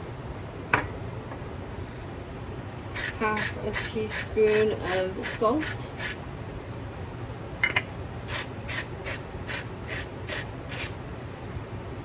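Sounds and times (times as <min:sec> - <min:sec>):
salt shaker hiss: 0:08.3 - 0:10.9.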